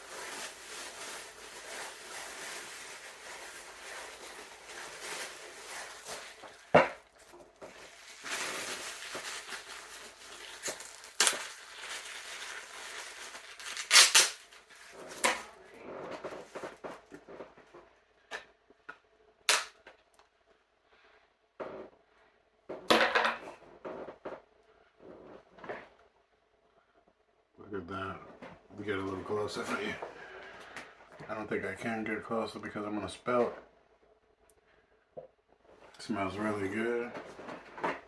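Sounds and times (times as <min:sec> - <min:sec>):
food packaging rustling: 0:00.0 - 0:17.4
packaging snaps and clicks: 0:19.5 - 0:19.8.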